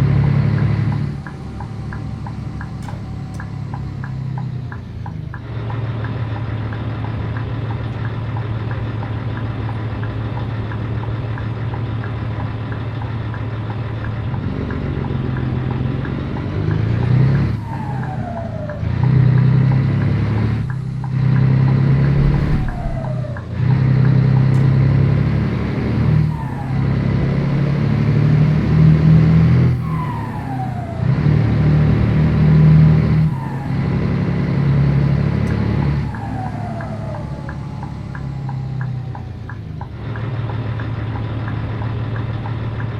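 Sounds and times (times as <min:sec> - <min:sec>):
truck diesel engine running: 0:00.0 - 0:21.1, 0:22.2 - 0:24.0.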